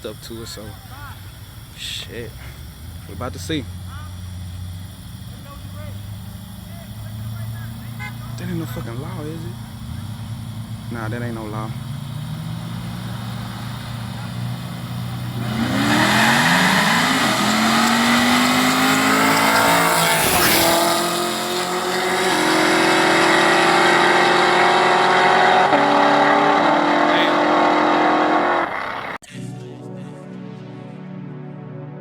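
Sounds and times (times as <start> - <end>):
car engines revving hard: 0.2 - 29.2
car upshifts: 11.8 - 29.2.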